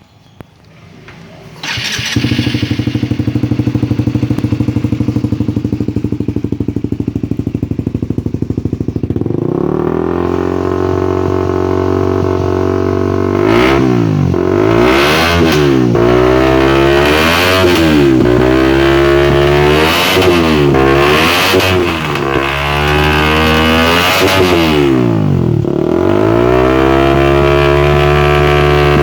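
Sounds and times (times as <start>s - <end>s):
motorcycle throttle blips: 0.2s - 29.0s
motorcycle engine idling: 1.6s - 13.4s.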